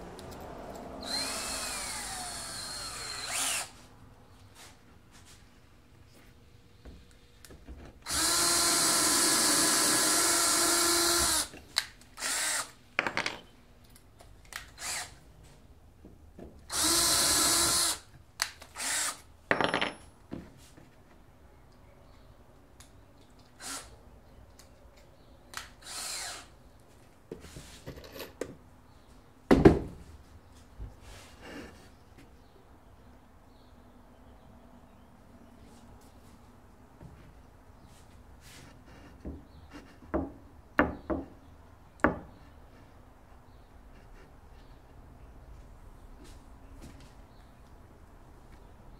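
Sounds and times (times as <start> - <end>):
power drill running: 1.0 - 3.7, 8.0 - 11.5, 12.2 - 12.8, 14.8 - 15.1, 16.7 - 18.0, 18.8 - 19.2, 23.6 - 23.9, 25.8 - 26.5.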